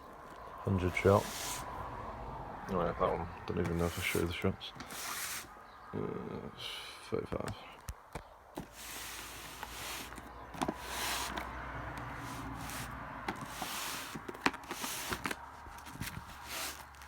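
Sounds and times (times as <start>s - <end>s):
firework cake handling rustle: 0.7s - 1.7s, 3.7s - 5.5s, 8.6s - 11.5s, 12.1s - 17.0s.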